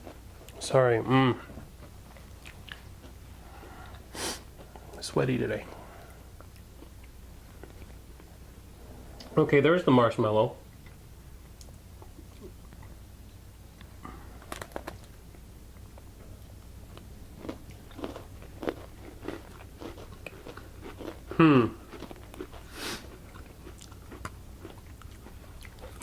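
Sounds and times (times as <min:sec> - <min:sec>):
cookie chewing and crunching: 0:00.0 - 0:08.4, 0:13.8 - 0:26.0.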